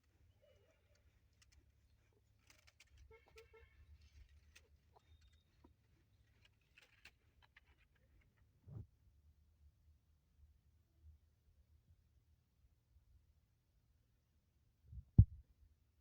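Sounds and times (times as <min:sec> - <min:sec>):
faint clicks: 0:00.0 - 0:08.4.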